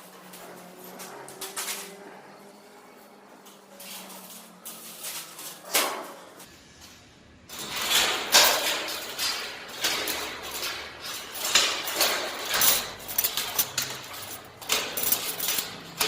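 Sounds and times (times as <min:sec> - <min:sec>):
metal door clanks and scrapes: 0:03.5 - 0:06.5, 0:07.5 - 0:16.0.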